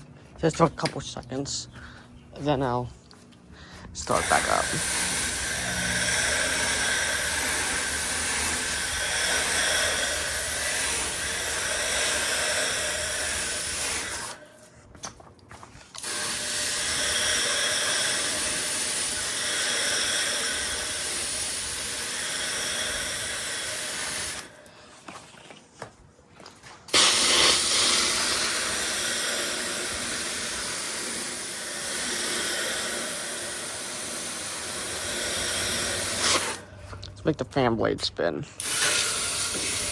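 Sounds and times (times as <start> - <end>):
hose water spraying: 3.8 - 14.7, 15.9 - 24.6, 26.9 - 36.8, 38.6 - 39.9.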